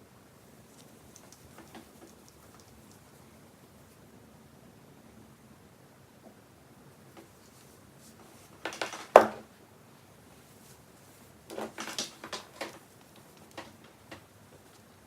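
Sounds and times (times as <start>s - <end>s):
handling clicks and taps: 11.5s - 14.9s.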